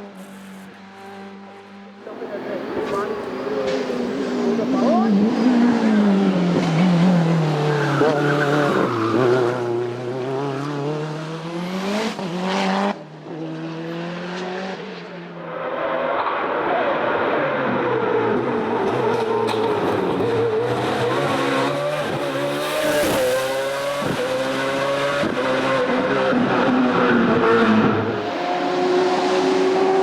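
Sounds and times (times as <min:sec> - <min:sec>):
racing car engines revving: 0:00.0 - 0:30.0.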